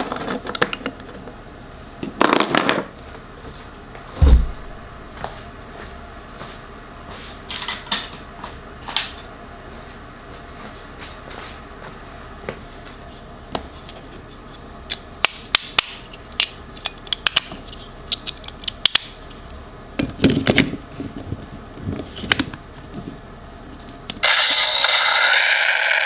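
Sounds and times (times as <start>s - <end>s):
rustling and knocking: 4.1s - 5.2s.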